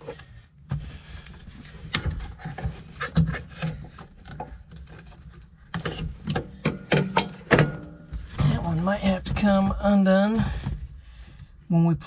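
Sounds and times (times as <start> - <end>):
hands clicking and knocking parts: 1.8 - 8.4.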